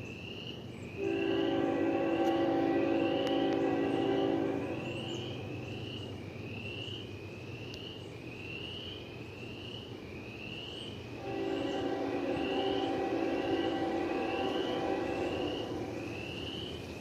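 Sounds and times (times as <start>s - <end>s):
insects chirping: 0.0s - 17.0s
low engine drone: 1.0s - 6.7s, 11.2s - 17.0s.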